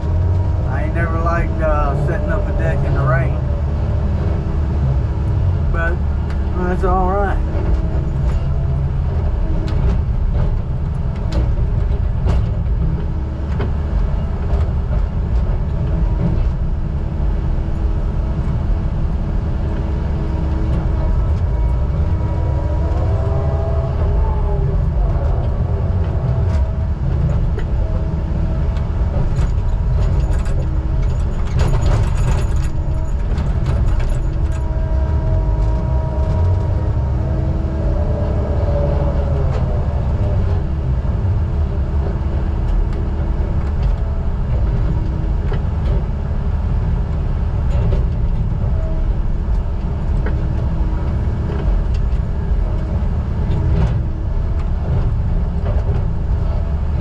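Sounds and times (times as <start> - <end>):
diesel machinery engine rumble: 0.0 - 57.0
pitched hum tones: 0.0 - 57.0
metal clanks: 28.8 - 36.7.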